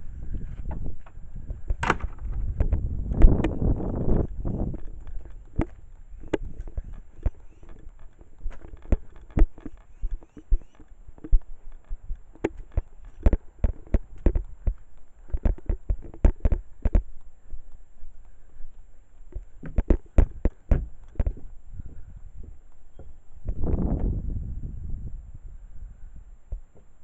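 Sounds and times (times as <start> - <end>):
footsteps walking: 2.3 - 21.6.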